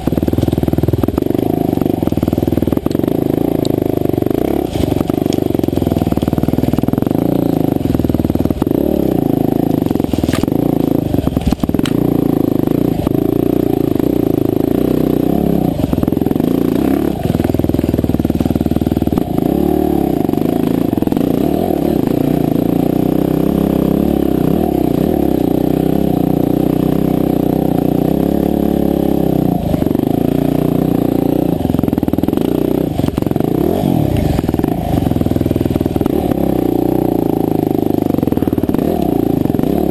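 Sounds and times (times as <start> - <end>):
dirt bike engine under load: 0.0 - 39.9.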